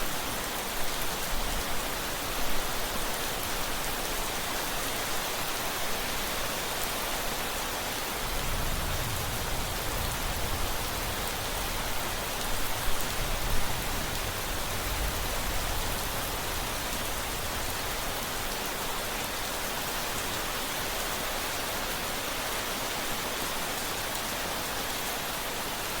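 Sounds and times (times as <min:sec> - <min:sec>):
heavy rain: 0:00.0 - 0:26.0
thunder rumbling: 0:08.2 - 0:17.8.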